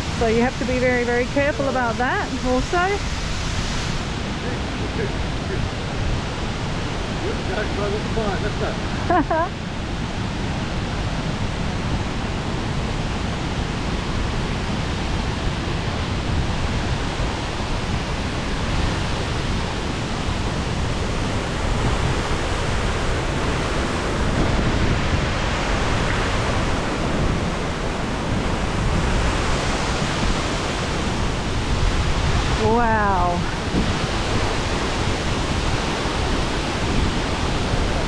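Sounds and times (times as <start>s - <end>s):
waterfall roaring: 0.0s - 38.0s.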